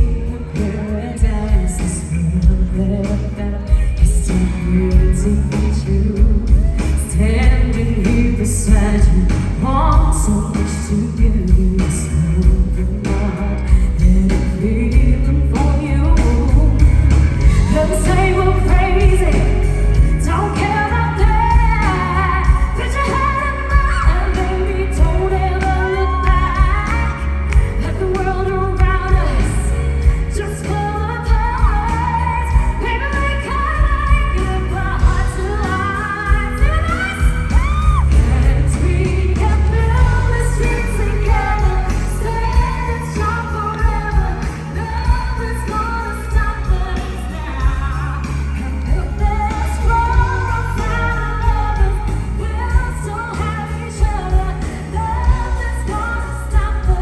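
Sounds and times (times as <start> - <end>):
band bass and drums: 0.0 - 57.0
women singing pop ballad: 0.0 - 57.0.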